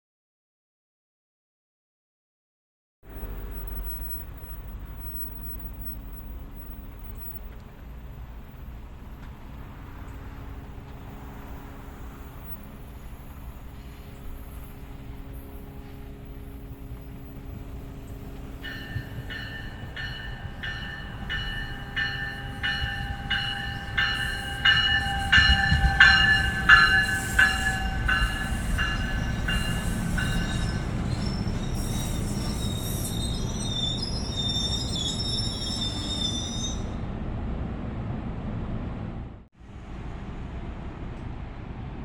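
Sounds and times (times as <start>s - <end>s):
rumble of steel wheels: 3.1s - 42.0s
high wavering wheel squeal: 11.2s - 37.1s
train bell ringing: 17.7s - 36.9s.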